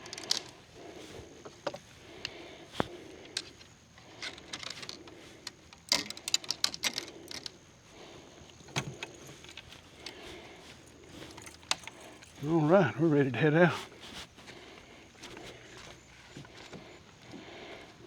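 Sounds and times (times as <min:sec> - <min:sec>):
fishing gear clicking and knocking: 0:01.6 - 0:07.6, 0:08.7 - 0:12.5.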